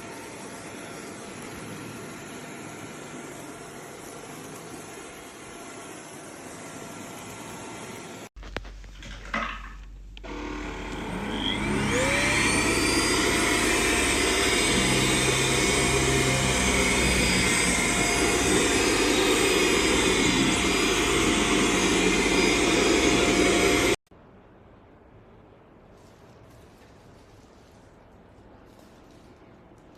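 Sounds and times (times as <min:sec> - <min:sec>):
vacuum cleaner motor whine: 0:00.0 - 0:08.3, 0:10.2 - 0:24.0.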